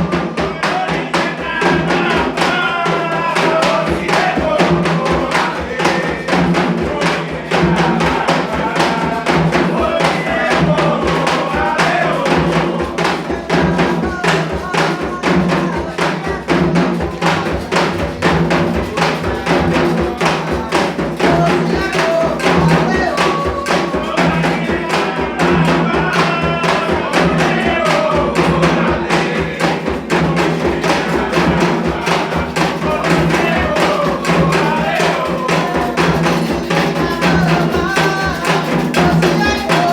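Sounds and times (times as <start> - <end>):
fast drum rhythm: 0.0 - 39.9
voices singing: 0.0 - 39.9.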